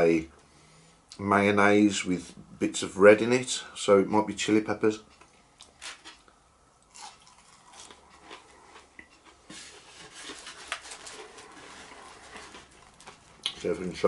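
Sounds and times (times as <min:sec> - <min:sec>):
chewing and crunching: 0:05.1 - 0:13.7.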